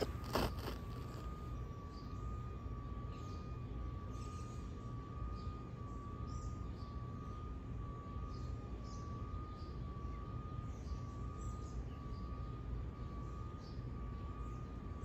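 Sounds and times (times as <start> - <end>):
birds chirping: 0.0 - 2.2
faint whine: 0.0 - 15.0.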